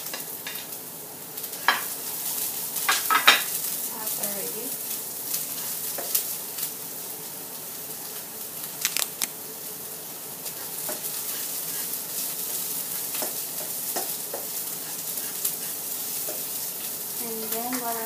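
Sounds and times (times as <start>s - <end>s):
onions sizzling in oil: 0.0s - 18.0s
spatula scraping and knocking pan: 10.4s - 18.0s.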